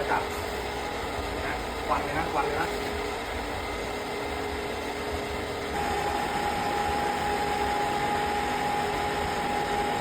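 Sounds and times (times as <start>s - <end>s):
exhaust fan rushing air: 0.0s - 10.0s
higher-pitched hum: 0.0s - 10.0s.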